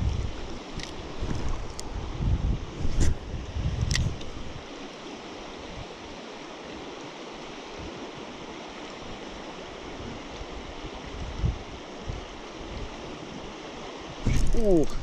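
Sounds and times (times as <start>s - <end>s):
wind buffeting microphone: 0.0s - 4.7s, 9.9s - 13.5s
stream flowing: 0.0s - 15.0s.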